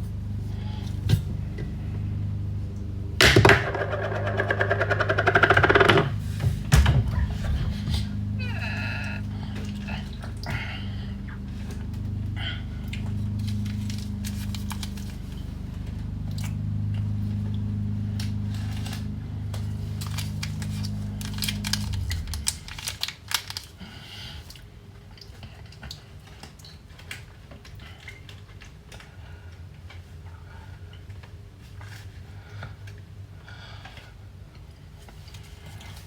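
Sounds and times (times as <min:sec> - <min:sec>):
kitchen appliance humming: 0:00.0 - 0:23.8.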